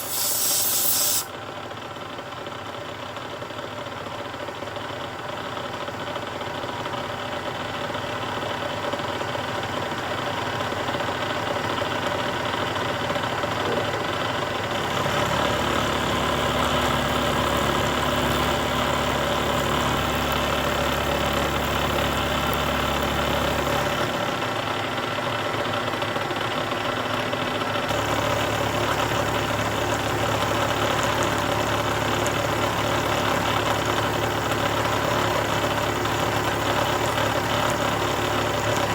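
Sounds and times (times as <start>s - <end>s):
milling machine cutting metal: 0.0s - 1.3s.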